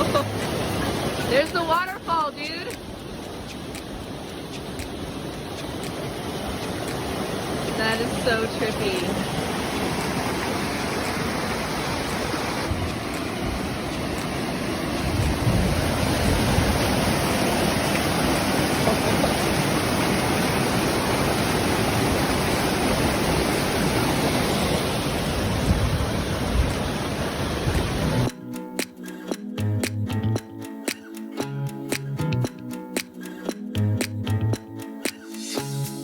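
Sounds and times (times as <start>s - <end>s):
waterfall rushing: 0.0s - 28.3s.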